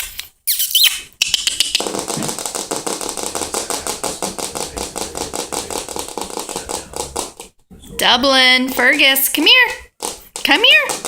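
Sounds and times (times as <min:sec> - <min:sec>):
high squeak: 0:00.5 - 0:01.0.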